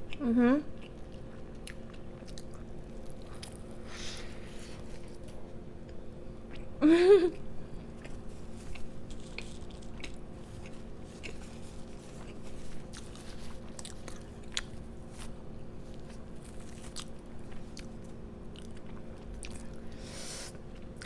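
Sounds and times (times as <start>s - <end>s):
low electrical hum: 0.0s - 21.0s
chewing and biting food: 0.8s - 3.9s, 7.8s - 21.0s.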